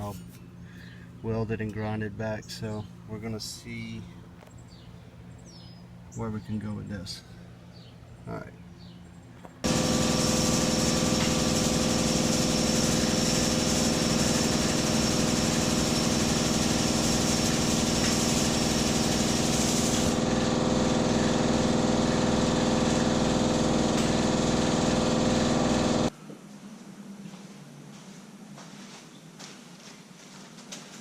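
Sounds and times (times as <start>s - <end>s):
motor-driven machine running: 9.6s - 26.1s
hiss: 9.7s - 20.2s.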